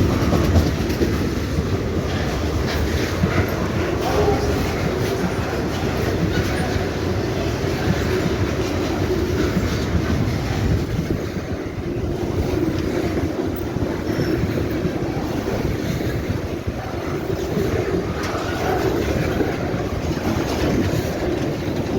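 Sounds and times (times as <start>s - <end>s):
train cars clattering: 0.0s - 21.9s
train wheels rumbling on rails: 0.0s - 21.9s.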